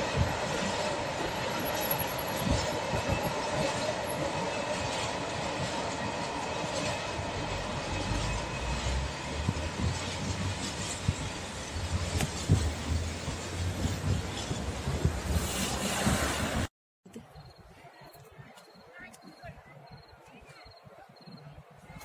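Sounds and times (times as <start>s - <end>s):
freight train rumbling: 0.0s - 16.7s.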